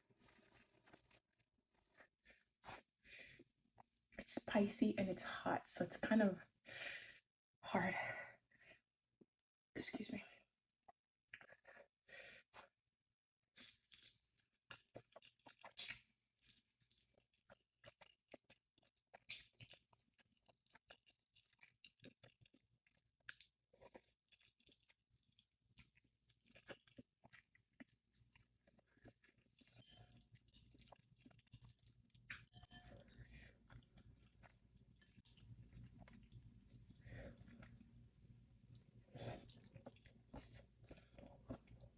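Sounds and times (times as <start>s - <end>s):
wet chewing and smacking: 11.3s - 11.9s, 13.6s - 41.9s.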